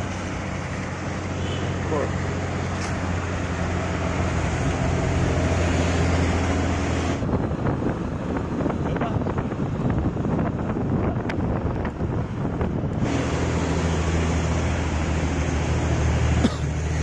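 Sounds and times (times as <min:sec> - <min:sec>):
heavy vehicle engine humming: 0:00.0 - 0:17.0
road noise: 0:00.0 - 0:17.0
wind buffeting microphone: 0:03.0 - 0:16.4.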